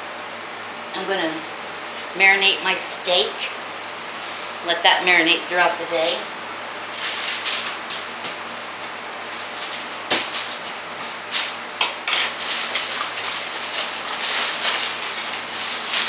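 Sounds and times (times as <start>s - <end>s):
kitchen clatter and rustling: 7.0s - 16.0s.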